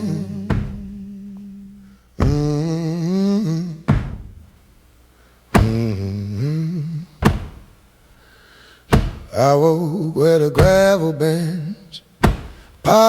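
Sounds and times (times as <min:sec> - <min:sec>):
heavy thud on the beat: 0:00.0 - 0:01.1, 0:02.2 - 0:02.7, 0:03.9 - 0:04.5, 0:05.5 - 0:06.0, 0:07.2 - 0:07.8, 0:08.9 - 0:09.4, 0:10.6 - 0:11.0, 0:12.2 - 0:12.7
wordless humming vocal: 0:00.0 - 0:04.5, 0:05.5 - 0:07.6, 0:08.9 - 0:13.0.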